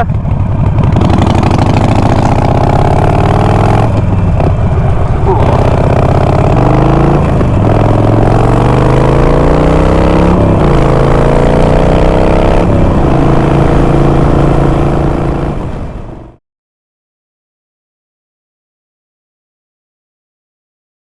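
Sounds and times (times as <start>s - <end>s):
motorcycle engine accelerating: 0.0s - 16.4s.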